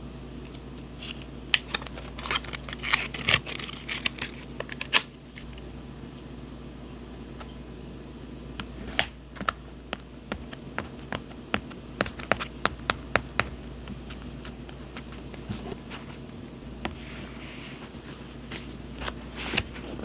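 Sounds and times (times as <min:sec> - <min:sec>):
paper rustle: 0:01.0 - 0:05.6, 0:16.9 - 0:20.0.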